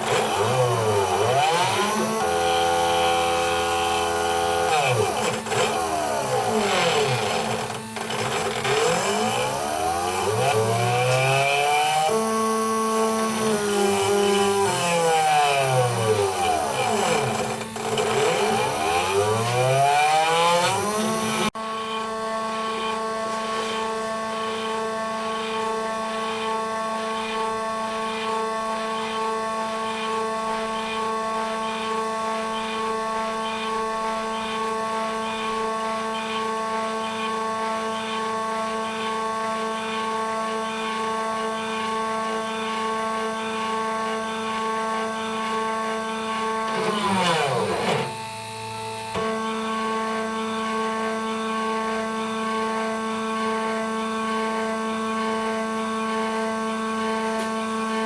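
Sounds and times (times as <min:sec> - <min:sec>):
spindle motor whining: 0:00.0 - 0:58.0.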